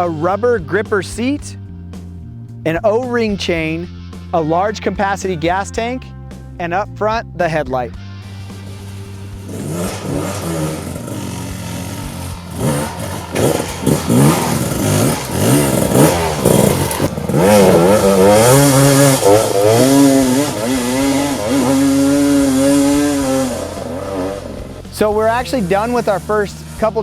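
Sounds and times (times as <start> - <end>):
two-stroke engine revving: 8.2 - 27.0.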